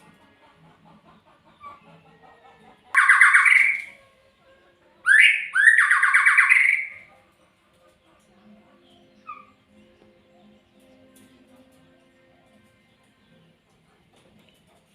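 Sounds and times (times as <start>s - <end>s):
songbird harsh rasping calls: 2.9s - 4.0s, 5.1s - 7.1s.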